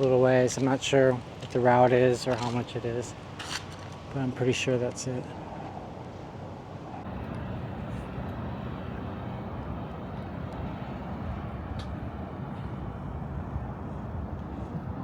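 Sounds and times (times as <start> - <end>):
vehicle engine rumbling: 6.8 - 15.0.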